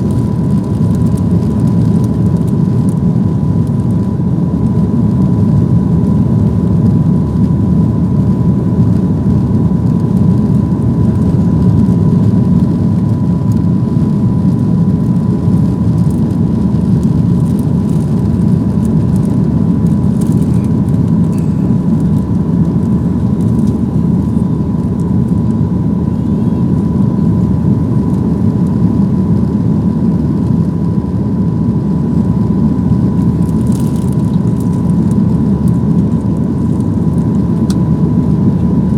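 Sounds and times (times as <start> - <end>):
jet engines in cabin: 0.0 - 38.9
thin steady whine: 0.0 - 38.9.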